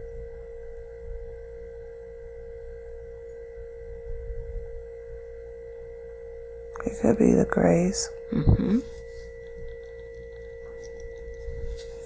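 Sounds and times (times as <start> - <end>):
steady held tone: 0.0 - 12.0
faint low rumble: 6.6 - 12.0.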